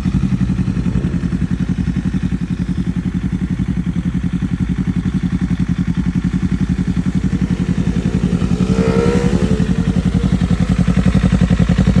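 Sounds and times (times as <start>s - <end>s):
motorcycle engine idling: 0.0s - 12.0s
rising and falling tone: 7.2s - 10.8s.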